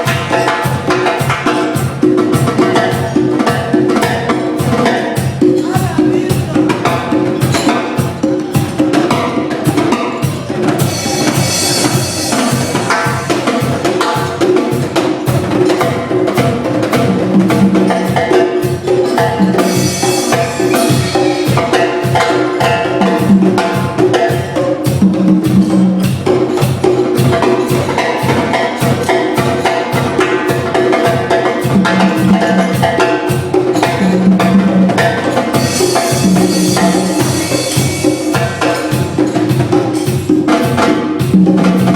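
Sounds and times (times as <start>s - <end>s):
fast percussion beat: 0.0s - 41.9s
sustained pitched instruments: 17.0s - 40.6s.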